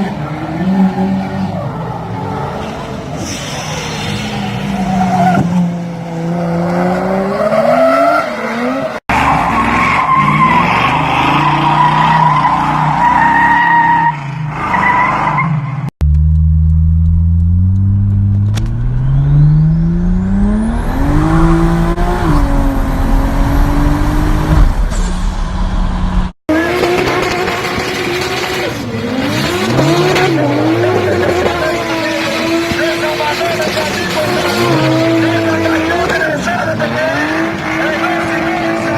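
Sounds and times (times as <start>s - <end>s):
high turbo whine: 16.0s - 38.1s
car engine revving: 16.0s - 38.9s.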